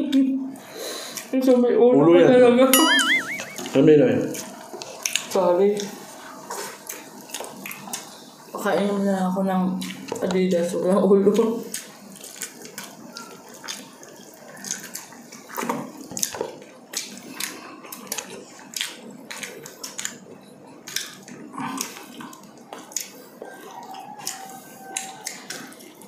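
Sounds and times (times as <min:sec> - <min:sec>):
wet chewing and lip-smacking: 0:03.0 - 0:09.0, 0:09.8 - 0:10.4, 0:11.2 - 0:26.0
fingers picking apart fish: 0:24.0 - 0:25.7.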